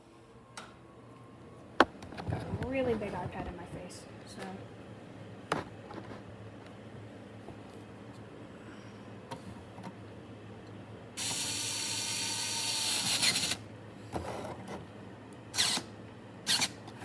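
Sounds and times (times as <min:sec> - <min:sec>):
electric screwdriver motor whining: 0:11.2 - 0:13.6, 0:15.6 - 0:15.9, 0:16.5 - 0:16.7.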